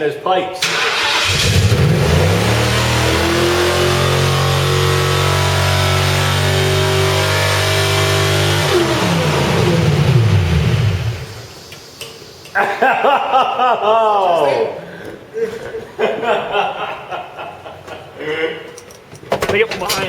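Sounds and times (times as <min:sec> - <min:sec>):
car engine revving high: 0:00.6 - 0:11.6.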